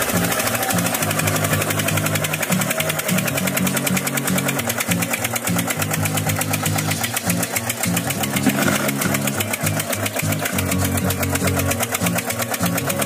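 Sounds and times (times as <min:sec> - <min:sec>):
small diesel engine chugging: 0:00.0 - 0:13.0.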